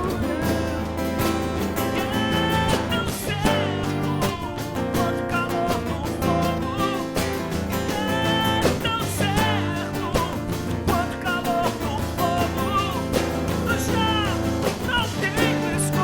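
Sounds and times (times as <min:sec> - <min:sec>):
bass: 0:00.0 - 0:16.0
drums: 0:00.0 - 0:16.0
keyboards: 0:00.0 - 0:16.0.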